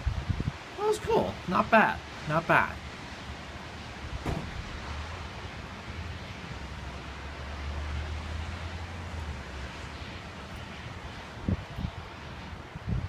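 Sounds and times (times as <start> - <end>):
wind buffeting the microphone: 0.0 - 1.2, 10.6 - 13.0
storm wind blowing: 0.0 - 13.0.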